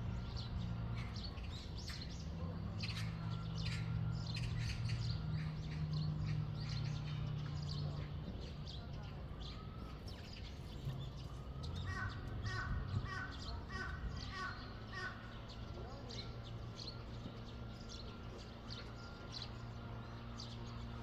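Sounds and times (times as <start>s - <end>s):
small birds chirping: 0.0s - 21.0s
harsh repeated bird calls: 11.6s - 17.0s.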